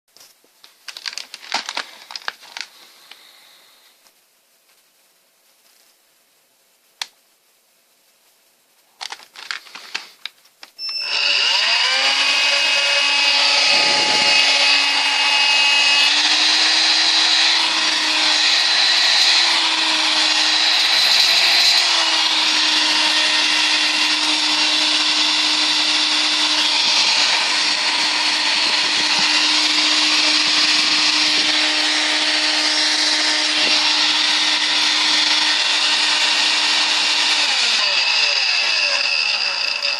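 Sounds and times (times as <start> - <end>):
cordless vacuum motor running: 10.8 - 39.9.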